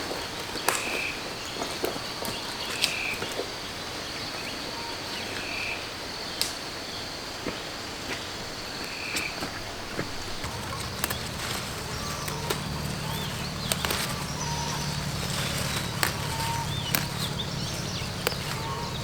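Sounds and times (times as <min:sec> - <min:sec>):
high insect drone: 0:10.4 - 0:19.0
sharp clicks: 0:10.4 - 0:19.0
frog or bird call: 0:10.5 - 0:19.0.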